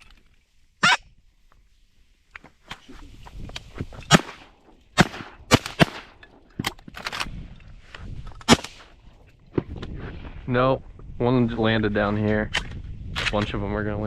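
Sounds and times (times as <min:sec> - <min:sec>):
shotgun shots: 0:04.1 - 0:06.2, 0:08.5 - 0:08.9.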